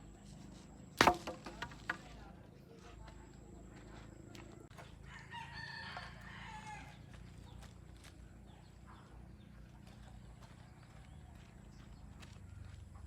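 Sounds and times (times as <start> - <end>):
faint rooster crowing: 4.2 - 7.6.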